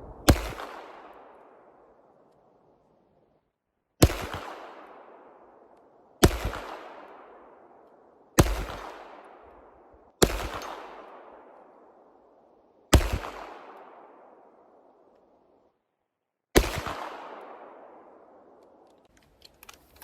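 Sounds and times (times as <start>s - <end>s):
pistol shots echoing: 0.0s - 2.0s, 4.0s - 12.0s, 12.9s - 14.8s, 16.6s - 18.8s.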